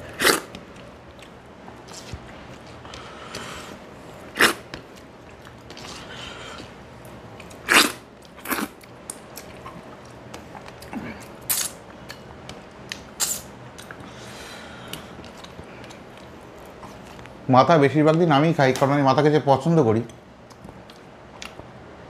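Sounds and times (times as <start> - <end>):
man chewing food: 0.0 - 17.4, 20.4 - 21.7
sharp mouth noises: 11.5 - 11.8.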